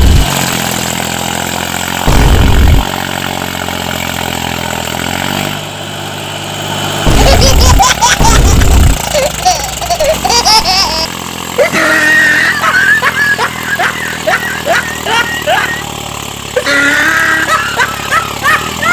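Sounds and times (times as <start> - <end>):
loud low rumbles: 0.0 - 0.6, 2.0 - 3.4, 7.0 - 11.0
tractor engine idling: 0.0 - 18.9.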